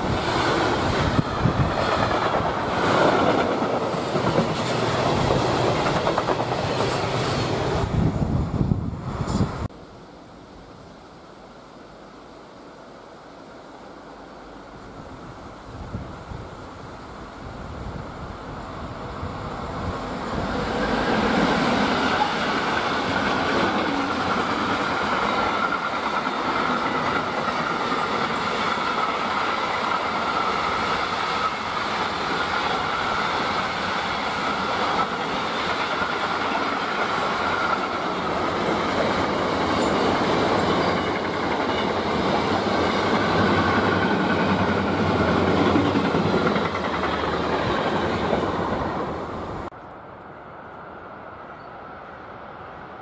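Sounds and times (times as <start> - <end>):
steel wheels rolling on rail: 0.0 - 9.7, 17.6 - 49.7.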